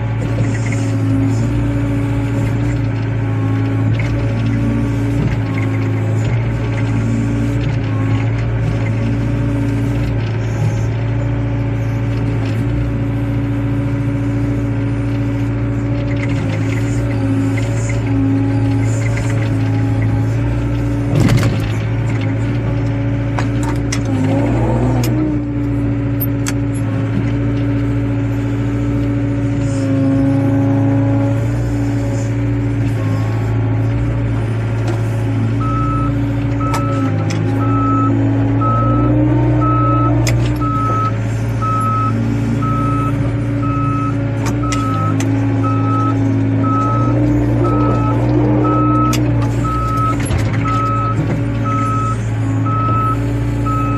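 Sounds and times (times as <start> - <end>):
excavator diesel engine running: 0.0 - 53.9
reversing alarm beeping: 35.5 - 53.9.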